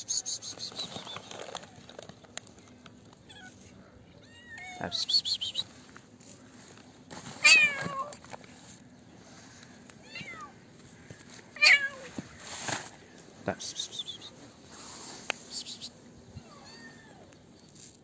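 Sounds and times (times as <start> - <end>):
cats meowing: 3.2 - 5.0, 7.4 - 8.2, 9.9 - 12.3, 16.3 - 17.4.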